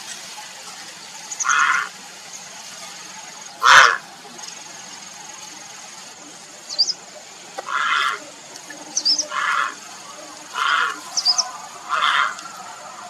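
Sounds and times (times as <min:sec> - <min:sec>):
heron croaking calls: 0:01.4 - 0:02.0, 0:03.6 - 0:04.0, 0:07.6 - 0:08.3, 0:09.0 - 0:09.9, 0:10.5 - 0:12.5.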